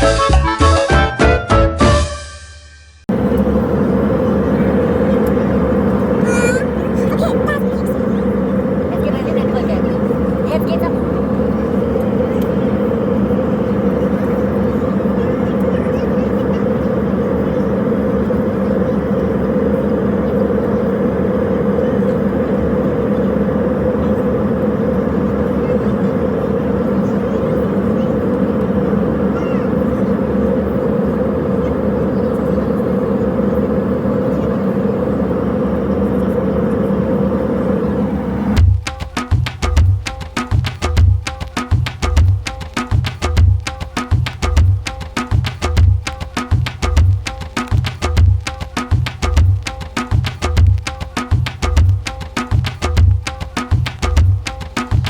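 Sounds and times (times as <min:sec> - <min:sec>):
vehicle running drone: 0:03.1 - 0:55.0.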